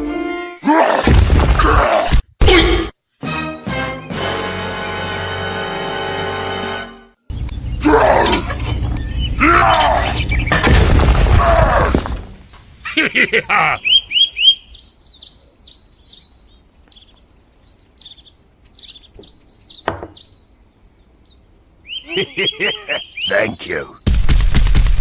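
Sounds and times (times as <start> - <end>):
small birds chirping: 7.2 - 10.6, 12.3 - 25.0.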